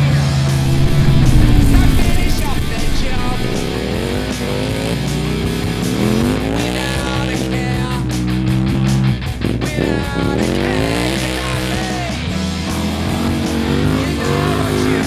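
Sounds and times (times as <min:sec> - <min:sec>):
motorcycle engine revving hard: 0:00.6 - 0:07.9
rock music with electric guitar: 0:02.0 - 0:15.0.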